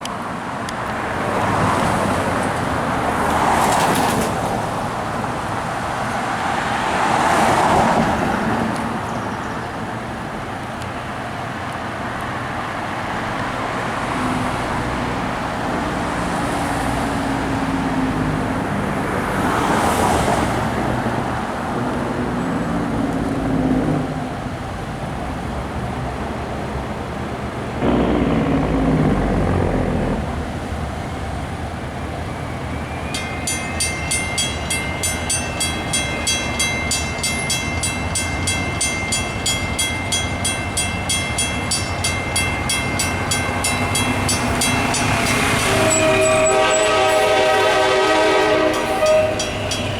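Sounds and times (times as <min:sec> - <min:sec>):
vehicles passing: 0:00.0 - 0:49.9
low engine hum: 0:26.8 - 0:32.4.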